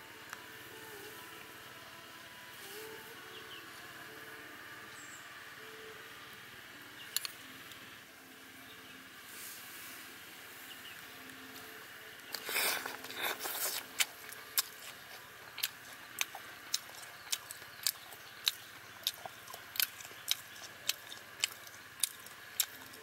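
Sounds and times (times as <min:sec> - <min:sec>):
person chewing crunchy food: 0:12.3 - 0:23.0.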